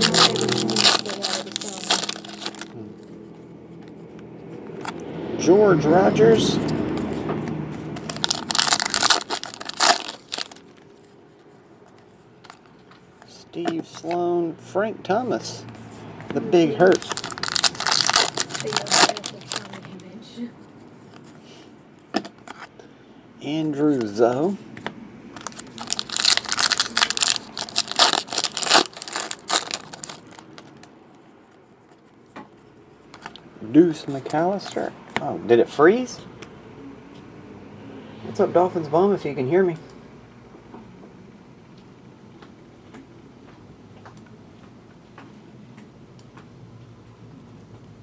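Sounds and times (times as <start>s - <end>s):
card pack wrapping crinkling: 0.0s - 2.8s, 8.0s - 10.9s, 16.8s - 19.9s, 25.4s - 30.8s.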